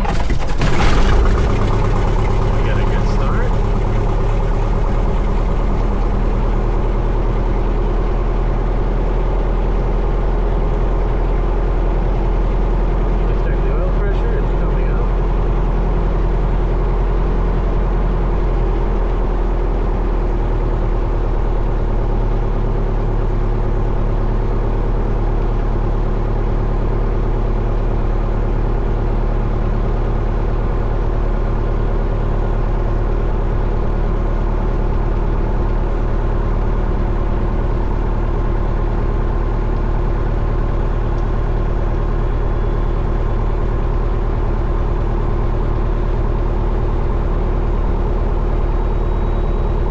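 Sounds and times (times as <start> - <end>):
airplane engine idling: 0.0 - 7.7.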